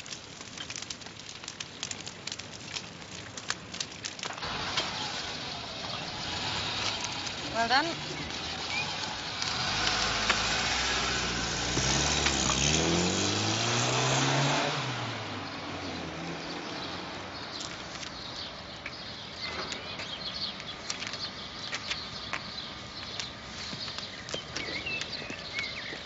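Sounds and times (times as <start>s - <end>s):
car driving past: 8.3s - 17.3s.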